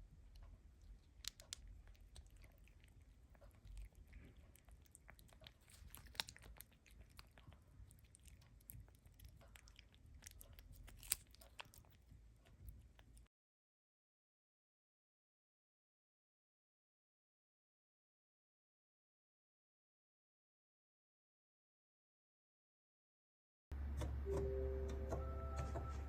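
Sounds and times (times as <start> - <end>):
faint chewing and crunching: 0.0 - 13.3.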